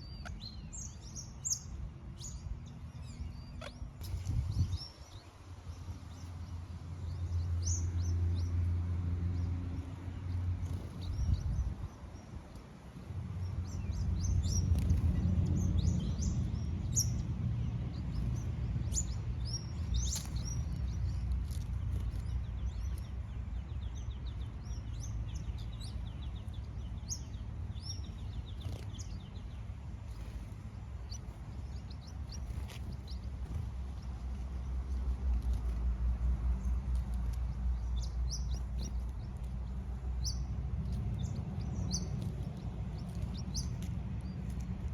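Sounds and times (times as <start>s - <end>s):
parrots chirping and trilling: 0.0s - 5.0s
steady low rumble: 0.0s - 44.9s.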